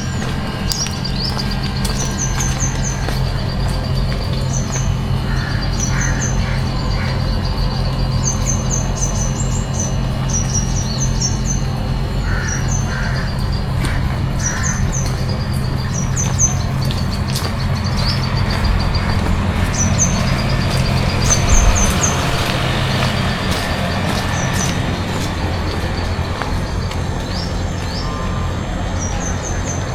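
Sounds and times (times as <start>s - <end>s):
small birds chirping: 0.0s - 29.9s
crows cawing: 5.3s - 7.3s, 12.2s - 15.0s
low rumble and hiss: 6.4s - 29.9s.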